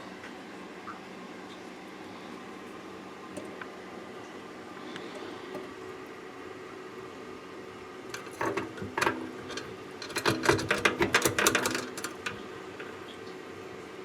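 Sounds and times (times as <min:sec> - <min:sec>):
faint steady hum: 0:00.0 - 0:14.0
metallic clicking and rattling: 0:08.1 - 0:13.0.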